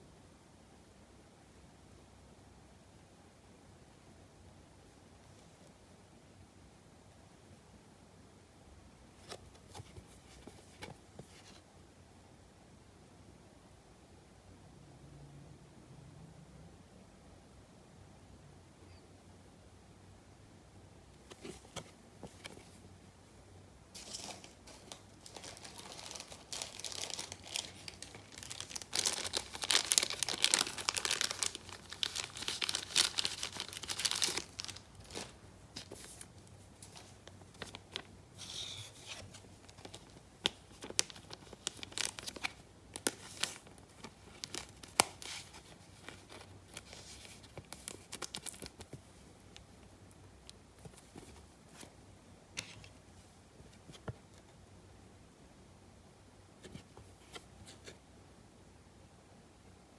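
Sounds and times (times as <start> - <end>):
wrappers tearing and crinkling: 24.0 - 35.4, 40.8 - 46.4.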